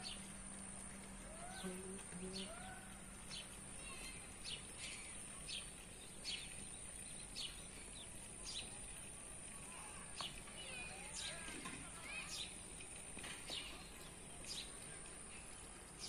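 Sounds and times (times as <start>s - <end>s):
steady outdoor hiss: 0.0s - 16.0s
small bird chirping: 1.4s - 8.8s.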